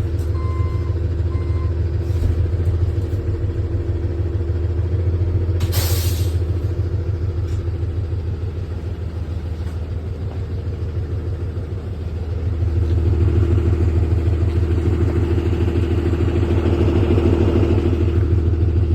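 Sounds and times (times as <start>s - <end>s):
bus diesel engine pulsing: 0.0s - 18.9s
short hiss: 5.7s - 6.4s.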